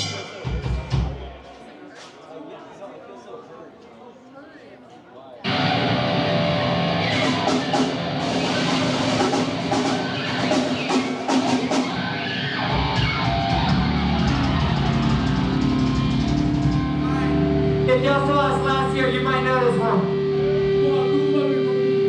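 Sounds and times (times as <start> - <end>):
drums with cymbal hits: 0.0 - 1.4, 6.7 - 18.0
electric guitar: 5.4 - 22.0.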